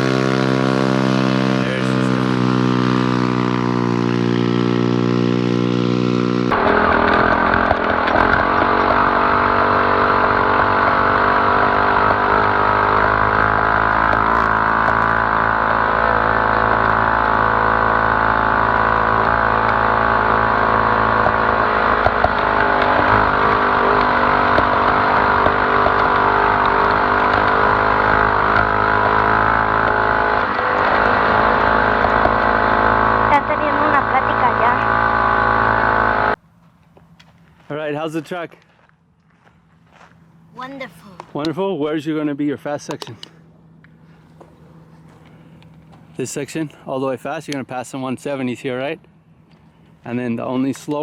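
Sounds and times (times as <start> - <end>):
small engine at high revs: 0.0 - 36.4.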